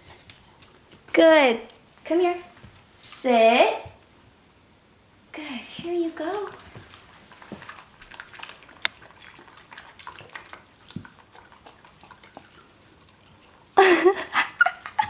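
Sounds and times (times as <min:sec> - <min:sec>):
woman speaking: 0:01.2 - 0:04.0, 0:05.3 - 0:06.6
dogs eating wet smacking: 0:05.8 - 0:15.0.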